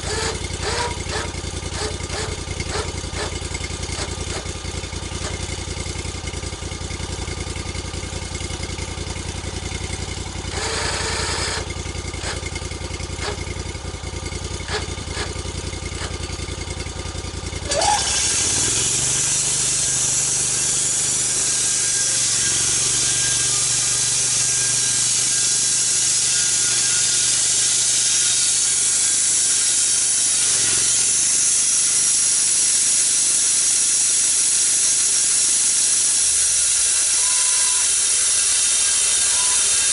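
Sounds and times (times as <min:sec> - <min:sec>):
saw blade hissing through wood: 0:00.0 - 0:05.6, 0:17.6 - 0:39.9
saw engine droning: 0:00.0 - 0:39.9.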